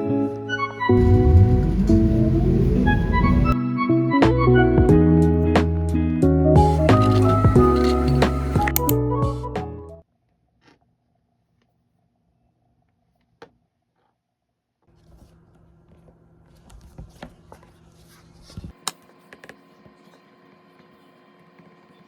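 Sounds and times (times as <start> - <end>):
steady low hum: 1.0 - 3.6.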